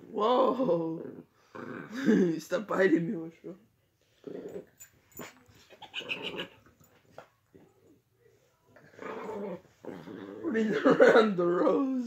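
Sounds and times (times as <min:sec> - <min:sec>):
dog growling: 0:00.8 - 0:02.2, 0:04.2 - 0:06.7, 0:08.8 - 0:10.8.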